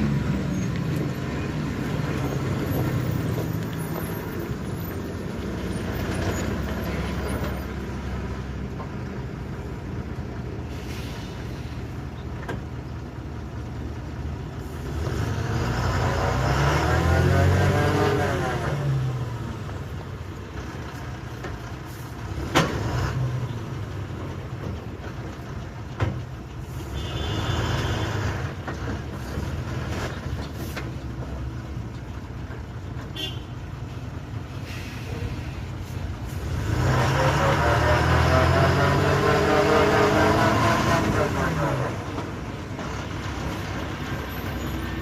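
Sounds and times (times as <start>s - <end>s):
heavy truck engine revving: 0.0s - 12.1s, 13.3s - 24.8s, 34.4s - 45.0s.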